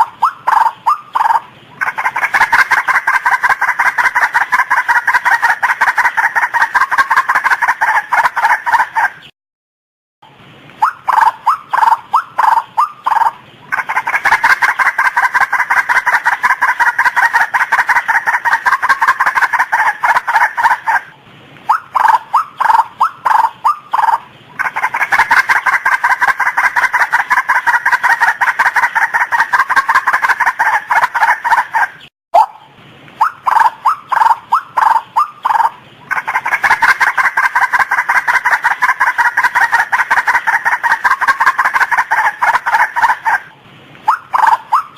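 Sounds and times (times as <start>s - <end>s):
waterhen calling: 0.0s - 9.3s, 10.7s - 44.9s.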